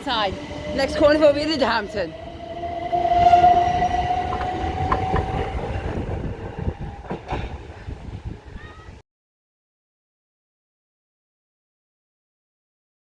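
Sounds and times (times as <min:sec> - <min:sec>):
electric train motor whine: 0:00.0 - 0:07.8.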